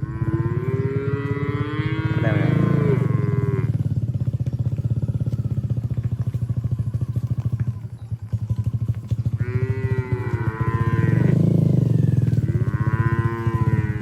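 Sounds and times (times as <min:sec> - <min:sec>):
cow mooing: 0:00.0 - 0:03.8, 0:09.4 - 0:14.0
small engine puttering: 0:00.0 - 0:14.0.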